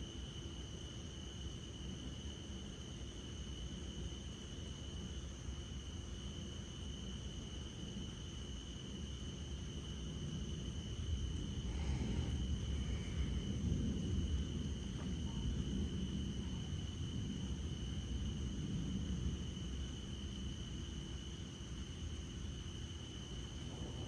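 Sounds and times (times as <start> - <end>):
night insects chirring: 0.0 - 24.0
distant thunder rumble: 10.2 - 21.4, 23.2 - 24.0.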